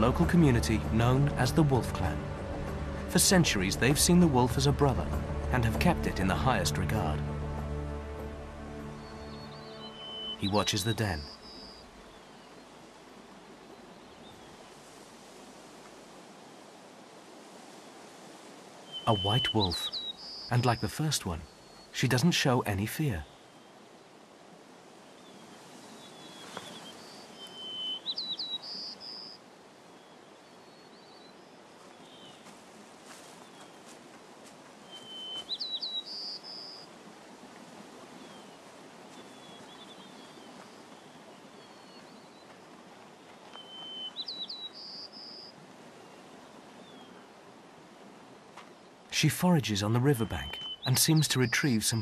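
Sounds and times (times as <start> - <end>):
faint outdoor background hiss: 0.0 - 52.0
songbird singing: 0.0 - 52.0
soft bird chirps: 8.9 - 15.0, 18.8 - 24.1, 25.0 - 34.1, 34.7 - 37.0, 37.6 - 47.4, 48.6 - 52.0.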